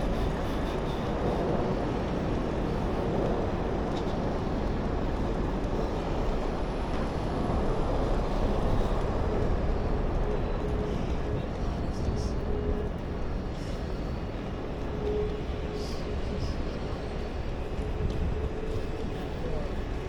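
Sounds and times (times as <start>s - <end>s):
vehicle rumble and hiss: 0.0s - 20.0s.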